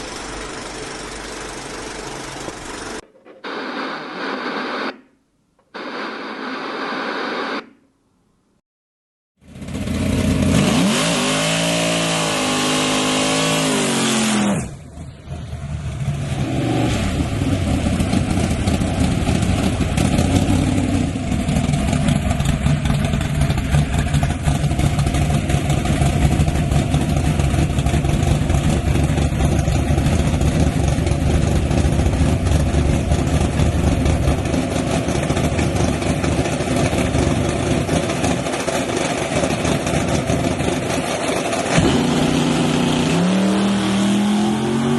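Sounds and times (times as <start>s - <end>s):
truck engine revving: 9.5s - 44.9s.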